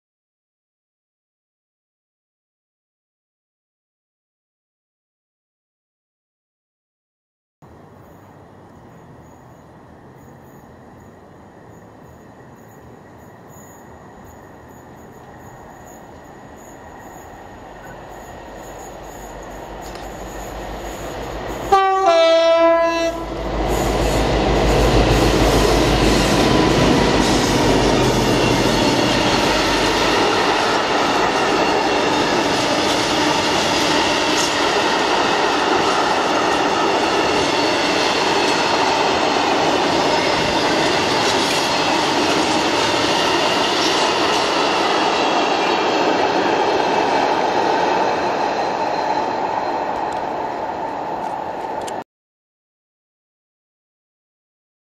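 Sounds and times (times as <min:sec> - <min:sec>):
locomotive engine rumbling: 0:17.2 - 0:33.8
two-tone locomotive horn: 0:21.6 - 0:27.8.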